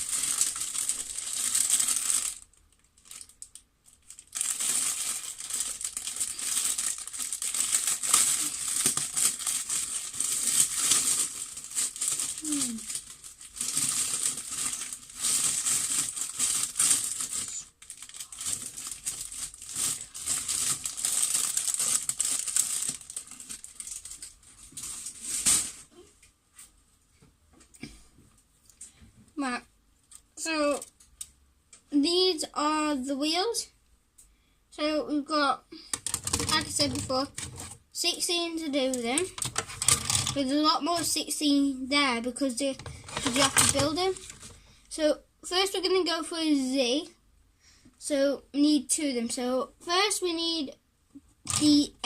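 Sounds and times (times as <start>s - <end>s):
plastic packet crinkling: 0.0s - 25.9s, 36.0s - 37.8s, 38.8s - 41.2s, 42.7s - 44.7s, 51.4s - 51.8s.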